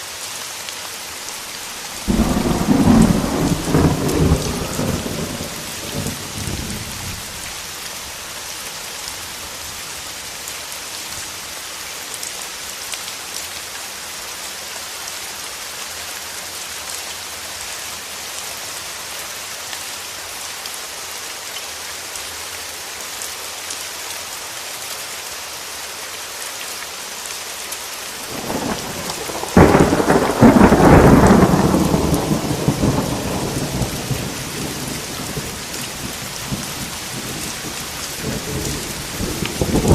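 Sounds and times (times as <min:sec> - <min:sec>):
steady rain: 0:00.0 - 0:39.9
thunder rumbling: 0:02.0 - 0:07.4, 0:28.3 - 0:39.9.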